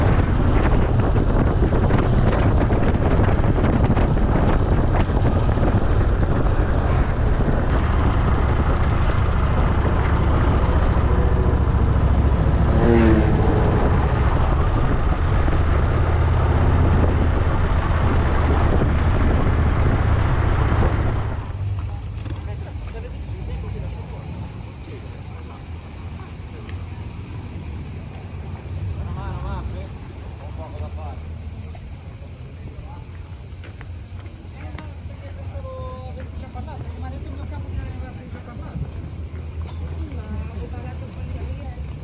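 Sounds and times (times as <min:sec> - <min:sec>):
wind rushing over microphone: 0:00.0 - 0:21.7, 0:31.8 - 0:39.7
motorcycle engine drone: 0:00.0 - 0:33.0.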